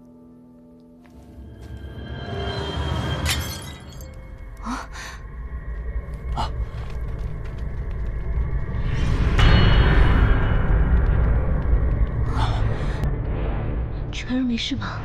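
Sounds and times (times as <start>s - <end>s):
tense film score: 0.0s - 15.0s
glass shattering crash: 3.2s - 4.1s.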